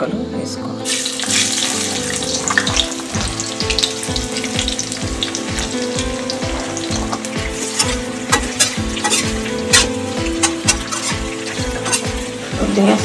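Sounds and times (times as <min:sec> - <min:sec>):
background music with steady beat: 0:00.0 - 0:13.0
vegetables sizzling in hot oil: 0:00.9 - 0:13.0.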